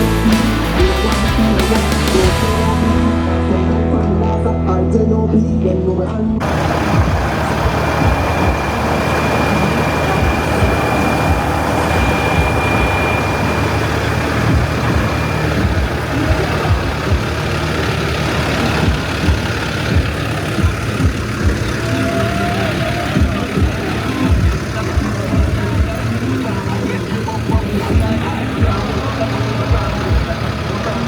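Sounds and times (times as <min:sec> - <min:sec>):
diesel truck engine idling: 0:00.0 - 0:31.0
thin high whine: 0:06.4 - 0:20.1.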